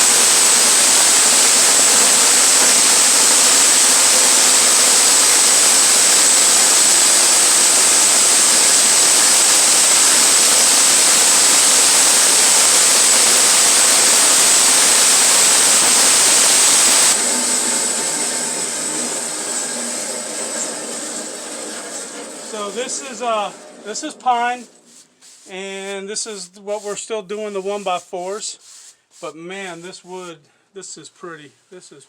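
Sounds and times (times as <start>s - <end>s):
engine running: 0.0s - 24.2s
saw blade cutting log: 0.0s - 25.7s.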